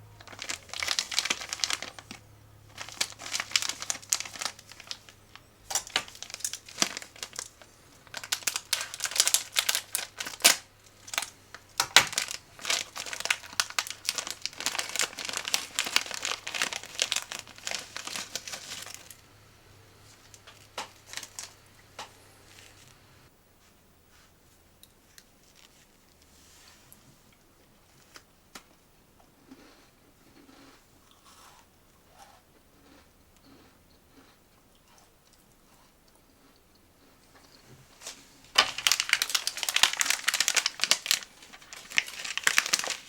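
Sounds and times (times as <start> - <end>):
snack packaging crinkling: 0.2 - 19.4, 20.0 - 23.0, 25.4 - 26.2, 37.5 - 43.0.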